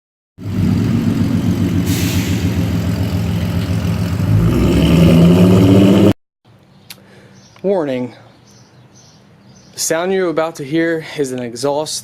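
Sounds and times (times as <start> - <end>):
loud car engine running: 0.4 - 6.1.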